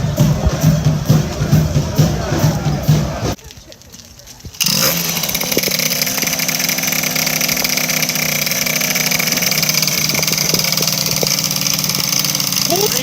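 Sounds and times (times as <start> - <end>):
small motorbike engine idling: 4.4 - 13.0
faint clicks: 9.8 - 12.7.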